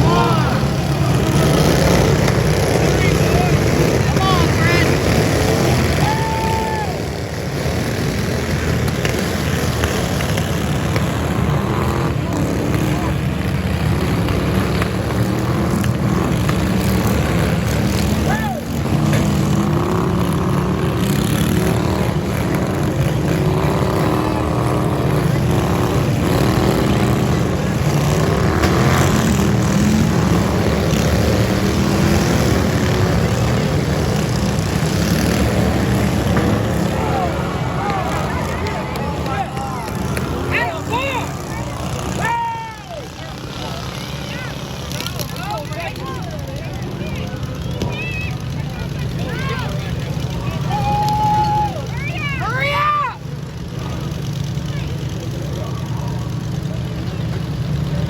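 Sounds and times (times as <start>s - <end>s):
riding lawnmower engines running: 0.0s - 58.0s.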